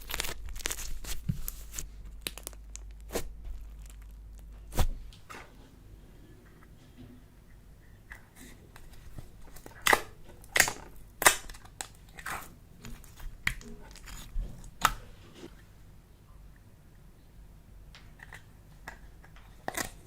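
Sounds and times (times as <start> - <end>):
slime popping and crackling: 0.0 - 1.2, 2.1 - 4.9, 9.5 - 15.0.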